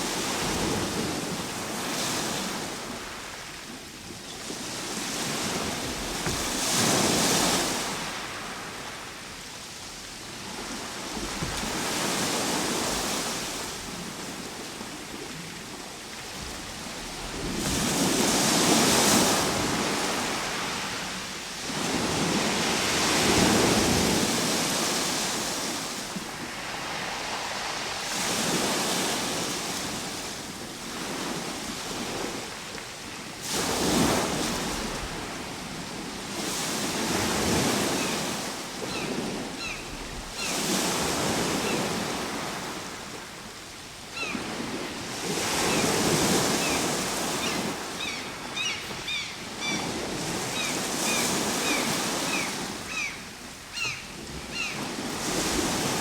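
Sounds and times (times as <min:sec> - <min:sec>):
ocean waves washing in: 0:04.6 - 0:31.8.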